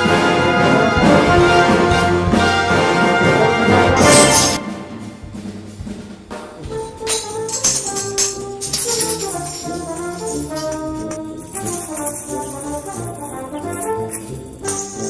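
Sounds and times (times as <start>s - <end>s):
brass band playing a hymn: 0.0s - 5.5s
tambourines struck and shaken: 3.9s - 4.7s, 6.6s - 15.0s.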